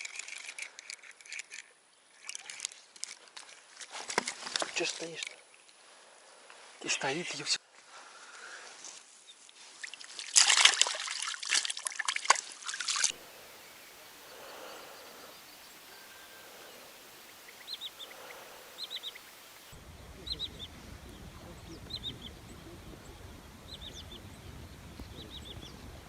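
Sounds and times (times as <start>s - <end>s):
crackling handling noise: 0.0s - 5.8s
bird chirping: 13.1s - 26.0s.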